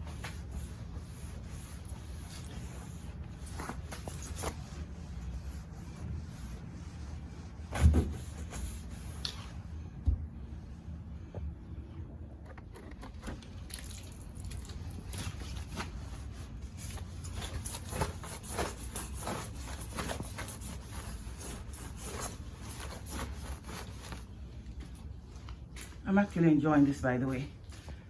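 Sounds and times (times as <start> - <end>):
brush scrubbing a tire: 0.0 - 9.8, 13.6 - 24.5.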